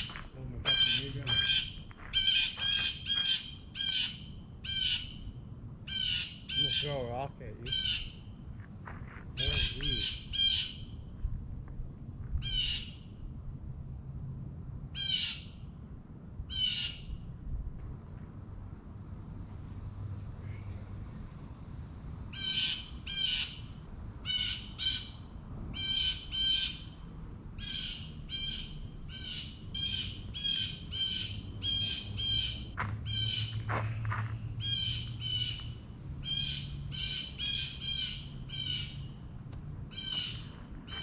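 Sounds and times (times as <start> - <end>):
bird squawking: 0.0 - 5.2, 5.9 - 8.2, 9.4 - 10.8, 39.9 - 41.0.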